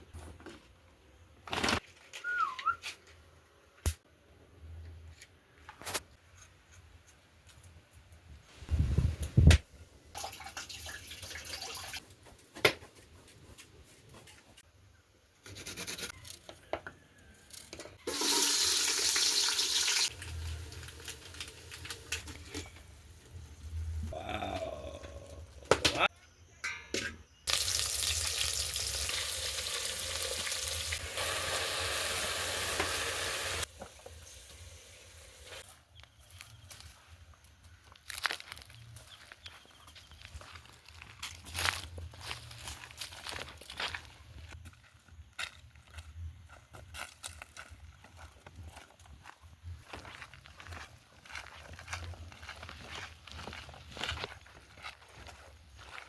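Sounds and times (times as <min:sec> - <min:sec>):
food sizzling in hot oil: 0:18.1 - 0:22.4, 0:27.5 - 0:35.6.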